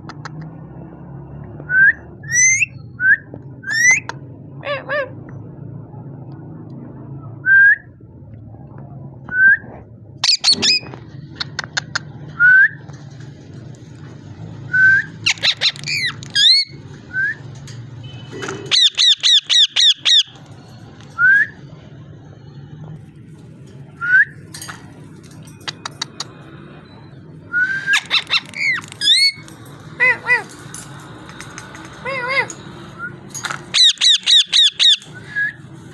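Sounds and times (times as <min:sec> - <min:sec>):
parrot whistling and squawking: 0:02.2 - 0:02.8, 0:03.6 - 0:04.1, 0:10.2 - 0:11.6, 0:14.8 - 0:17.5, 0:18.7 - 0:20.4, 0:27.6 - 0:29.4, 0:32.1 - 0:35.6.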